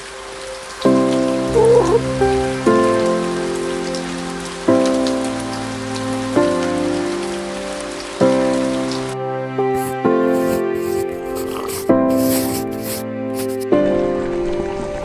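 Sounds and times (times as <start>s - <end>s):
steady rain: 0.0s - 9.2s
soft music of sustained chords: 0.0s - 12.3s, 13.0s - 15.0s.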